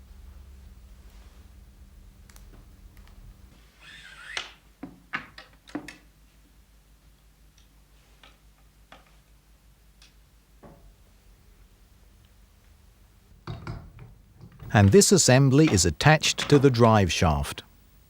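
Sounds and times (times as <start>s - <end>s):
low steady hum: 0.0s - 3.6s.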